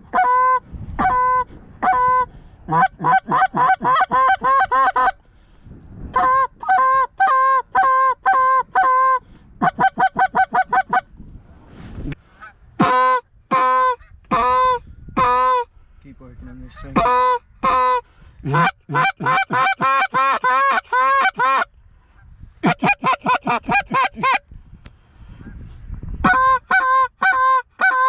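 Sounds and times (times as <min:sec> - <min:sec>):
geese clucking: 0:00.0 - 0:05.2, 0:06.2 - 0:11.1, 0:12.4 - 0:15.7, 0:16.8 - 0:21.7, 0:22.6 - 0:24.4, 0:26.3 - 0:28.0
geese honking: 0:00.0 - 0:05.2, 0:06.2 - 0:11.1, 0:12.4 - 0:15.7, 0:16.8 - 0:21.7, 0:22.6 - 0:24.4, 0:26.3 - 0:28.0.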